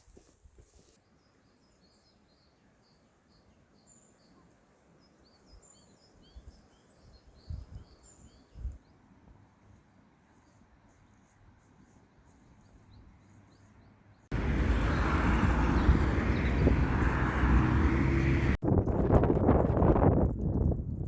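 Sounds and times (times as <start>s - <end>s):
wind buffeting microphone: 14.3s - 21.0s.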